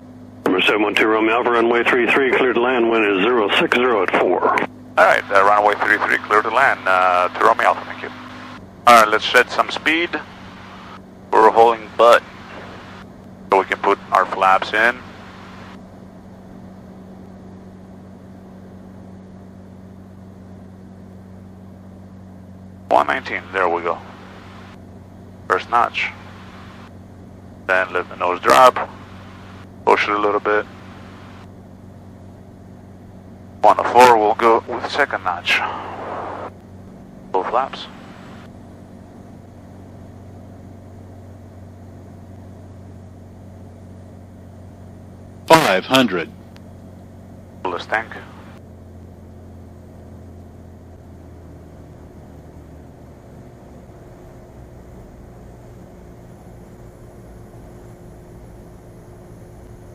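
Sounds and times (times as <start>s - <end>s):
propeller plane engine drone: 0.0s - 59.9s.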